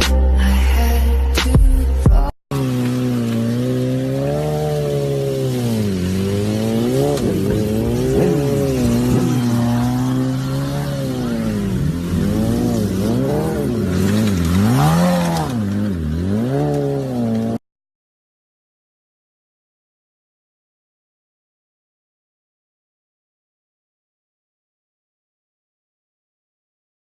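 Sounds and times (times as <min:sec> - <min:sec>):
motorbike engine revving: 0:02.2 - 0:17.6.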